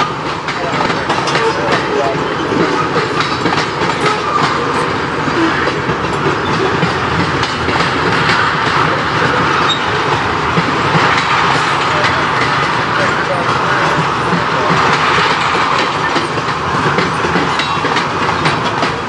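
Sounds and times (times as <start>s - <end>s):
rumble of wheels on rail: 0.0s - 19.0s
wheels clicking over rail joints: 0.0s - 19.0s.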